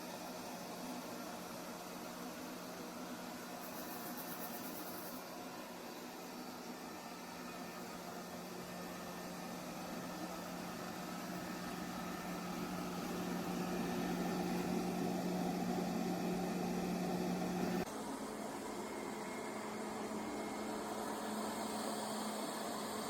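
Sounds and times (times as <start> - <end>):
vacuum cleaner motor humming: 5.2 - 23.0.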